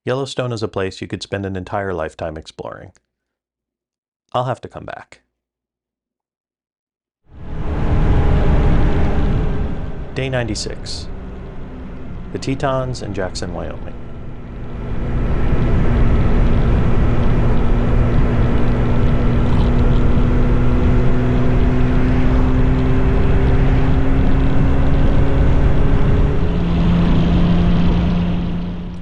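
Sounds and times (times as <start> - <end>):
heavy rushing noise: 7.3 - 29.0
motorcycle engine cruising: 7.4 - 29.0.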